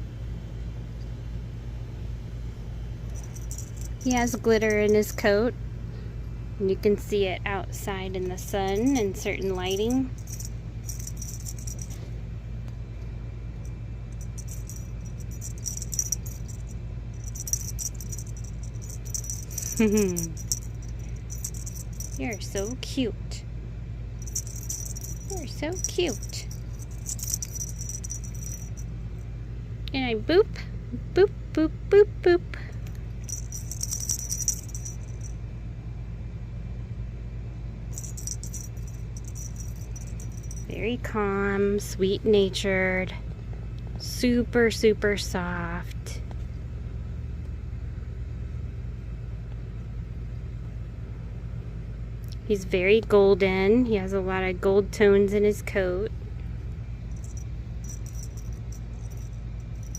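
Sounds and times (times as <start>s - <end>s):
steady low hum: 0.0s - 59.9s
light metallic jingling: 3.1s - 5.5s, 8.2s - 12.2s, 13.6s - 23.0s, 24.2s - 29.0s, 32.7s - 35.4s, 37.9s - 41.2s, 57.0s - 59.9s.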